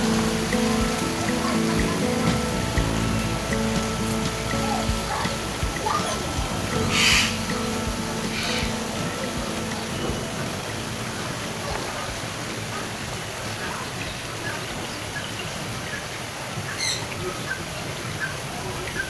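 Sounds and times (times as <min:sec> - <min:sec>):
bright bird call: 0:00.0 - 0:10.4
birds chirping: 0:00.0 - 0:19.0
steady background hiss: 0:00.0 - 0:19.0.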